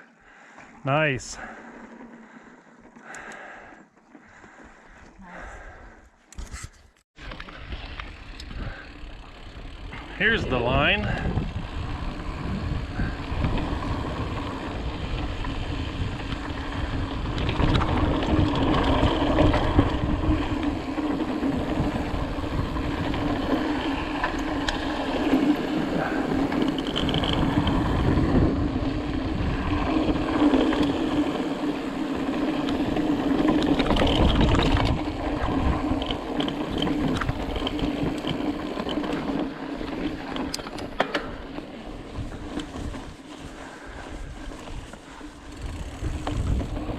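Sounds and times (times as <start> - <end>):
wind on microphone: 9.9 - 38.5, 42.0 - 46.9
bike clicks and knocks: 15.4 - 28.3, 29.6 - 43.2.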